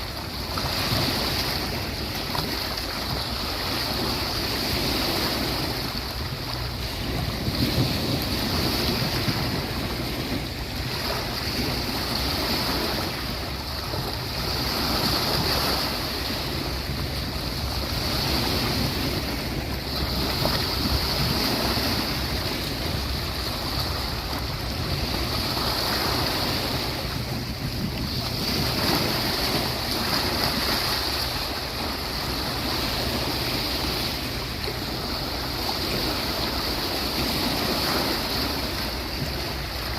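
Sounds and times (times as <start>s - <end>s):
sea waves washing onto beach: 0.0s - 39.9s.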